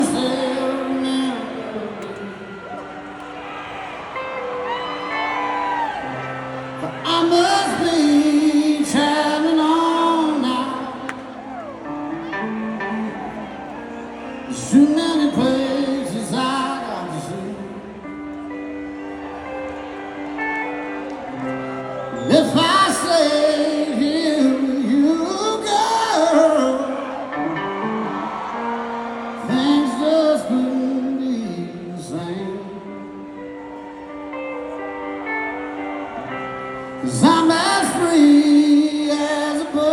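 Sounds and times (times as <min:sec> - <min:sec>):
live band playing slow song: 0:00.0 - 0:39.9
sustained guitar chords: 0:00.0 - 0:39.9
man singing long held notes: 0:06.8 - 0:11.4, 0:14.5 - 0:18.0, 0:22.3 - 0:28.2, 0:29.4 - 0:33.4, 0:36.8 - 0:39.9.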